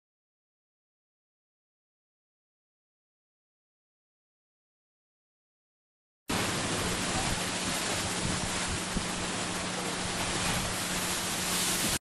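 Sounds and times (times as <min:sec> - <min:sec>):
sea surf rushing: 0:06.3 - 0:12.0.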